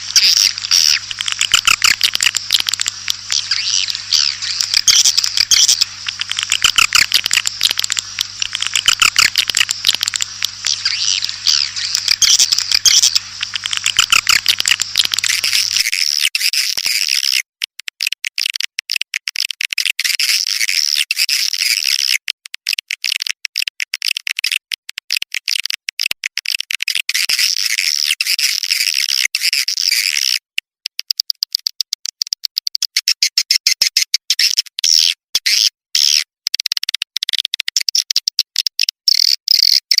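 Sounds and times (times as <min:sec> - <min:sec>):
swiftlets twittering: 0:00.0 - 0:16.0.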